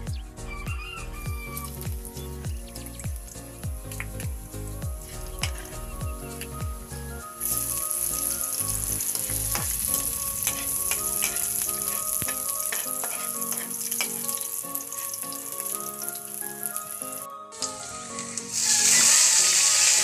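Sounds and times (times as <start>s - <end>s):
food sizzling in hot oil: 1.4s - 20.0s
metal utensil scraping pan: 9.1s - 15.3s.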